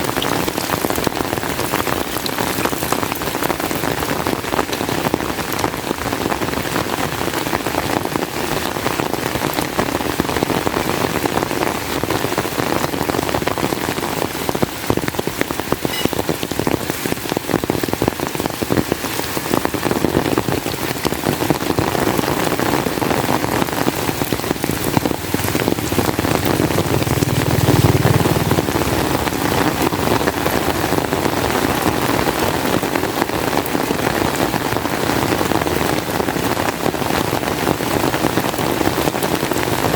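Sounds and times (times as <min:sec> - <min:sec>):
heavy rain falling: 0:00.0 - 0:39.9
low rumble: 0:24.3 - 0:30.9.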